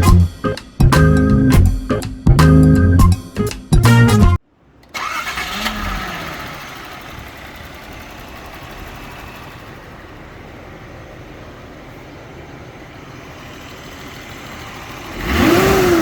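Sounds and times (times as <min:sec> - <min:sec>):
background music: 0:00.0 - 0:04.4
car engine starting and idling: 0:04.6 - 0:16.0.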